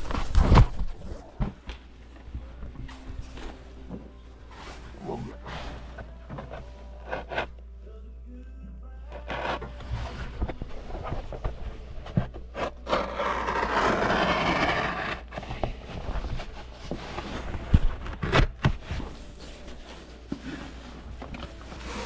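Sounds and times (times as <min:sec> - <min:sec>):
carpet being cut: 0:12.1 - 0:16.0.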